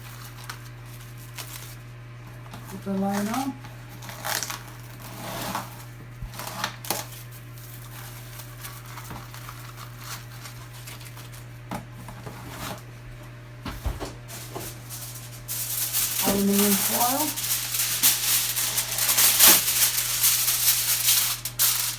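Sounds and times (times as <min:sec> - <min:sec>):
kitchen wrap crinkling: 0:00.0 - 0:21.9
steady low hum: 0:10.0 - 0:21.9.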